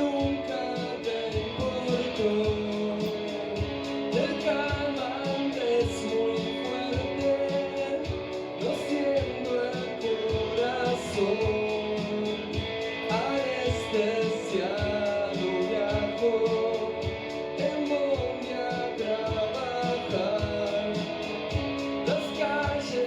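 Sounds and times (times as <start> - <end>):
bass guitar: 0.0 - 7.5
drumbeat with cymbal ticks: 0.0 - 23.0
electric guitars: 0.0 - 23.0
person singing: 0.0 - 23.0.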